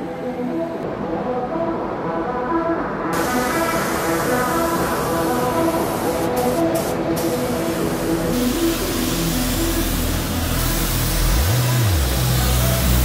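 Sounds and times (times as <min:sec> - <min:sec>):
hiss of noise: 0:02.8 - 0:13.0.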